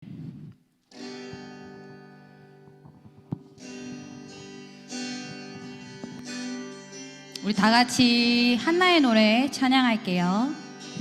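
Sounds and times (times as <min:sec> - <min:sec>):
acoustic guitar chords ringing: 0:00.8 - 0:11.0.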